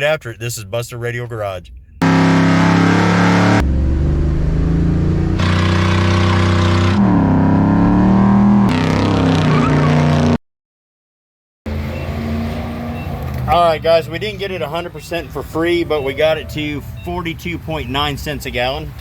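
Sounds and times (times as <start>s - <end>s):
vehicle engine revving: 2.0s - 10.4s, 11.7s - 18.0s.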